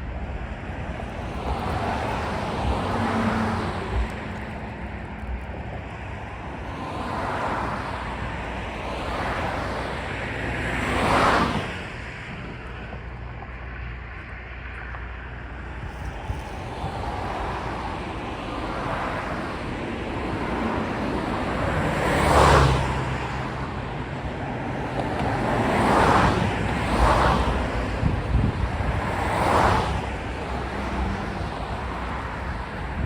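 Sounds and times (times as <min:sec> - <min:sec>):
vehicles passing: 0:00.0 - 0:33.0
wind on microphone: 0:15.3 - 0:33.0.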